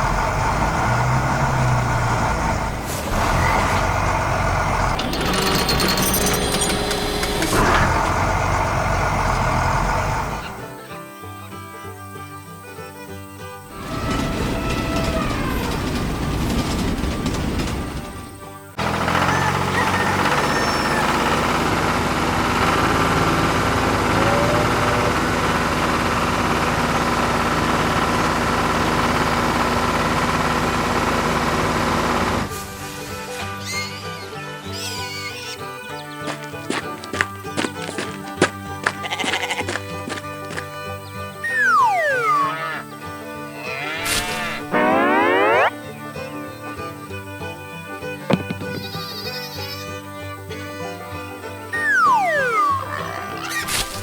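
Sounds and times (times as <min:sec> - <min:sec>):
rapid clattering: 0:00.0 - 0:10.4, 0:13.7 - 0:21.8
construction machine engine running: 0:00.0 - 0:10.9, 0:12.9 - 0:33.4, 0:35.8 - 0:49.1, 0:49.8 - 0:54.0.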